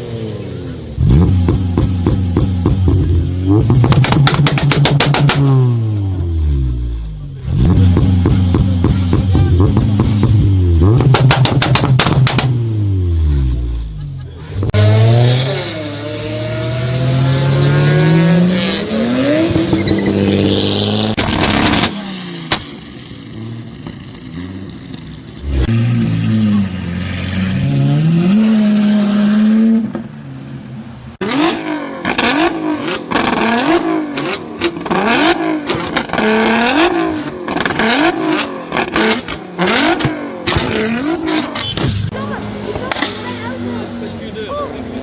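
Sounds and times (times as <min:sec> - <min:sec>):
car engines revving hard: 0:00.0 - 0:45.0
exhaust pops and bangs: 0:01.2 - 0:05.6, 0:07.8 - 0:12.6, 0:21.1 - 0:22.8, 0:34.2 - 0:43.2.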